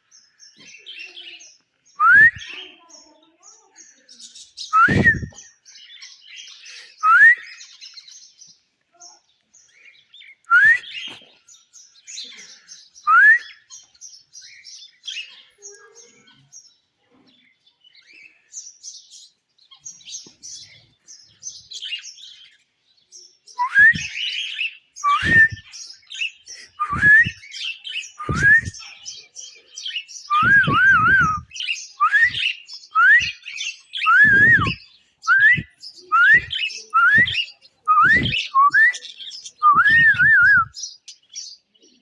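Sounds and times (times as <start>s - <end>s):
parrot whistled call: 2.0s - 2.6s, 4.8s - 5.3s, 23.6s - 24.2s, 25.0s - 25.7s, 26.8s - 27.4s, 28.2s - 28.8s, 30.3s - 33.4s, 34.0s - 39.0s, 39.6s - 40.8s
high twittering chirps: 4.8s - 5.4s, 23.6s - 24.2s, 25.0s - 25.7s, 26.7s - 28.9s, 30.2s - 40.8s.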